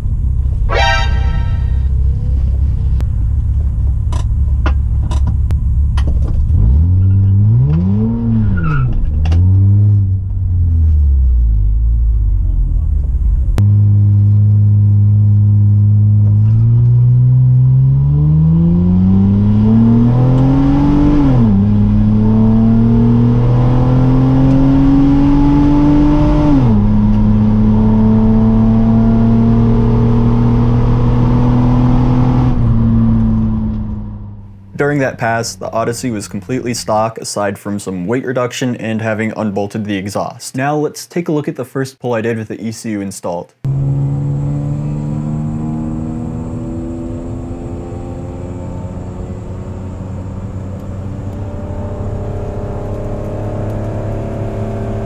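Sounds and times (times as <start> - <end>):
car engine at full throttle: 0.0 - 36.7, 43.7 - 55.0
engine revving: 6.4 - 36.7, 43.7 - 55.0.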